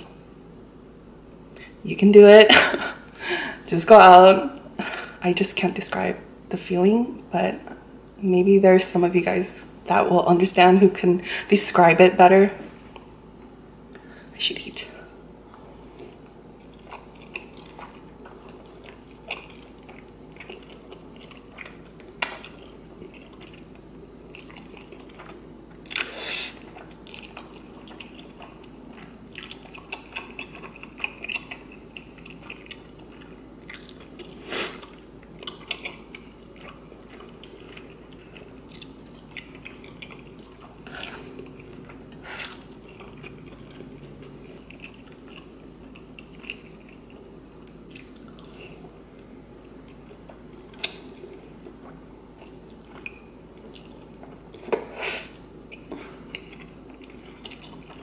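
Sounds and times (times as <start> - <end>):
faint steady hum: 0.0 - 58.0
close-up chewing: 15.5 - 48.9, 55.7 - 58.0.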